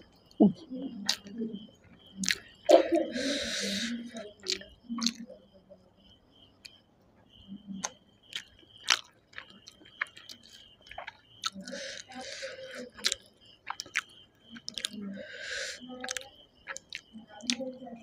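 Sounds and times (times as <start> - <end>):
wet chewing and lip smacking: 0.1 - 5.3, 7.8 - 17.7
sharp mouth clicks: 0.3 - 1.3, 2.2 - 2.8, 3.4 - 5.2, 7.8 - 17.6
breathy hiss: 2.7 - 4.2, 11.6 - 13.0, 15.2 - 15.9.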